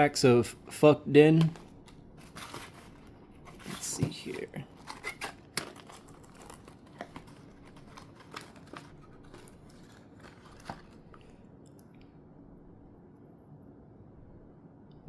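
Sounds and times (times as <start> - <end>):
packaging crinkling and rustling: 0.0 - 11.9.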